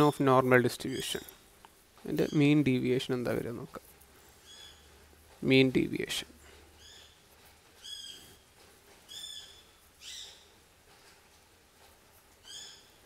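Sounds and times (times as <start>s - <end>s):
high bird chirps: 9.1s - 10.5s.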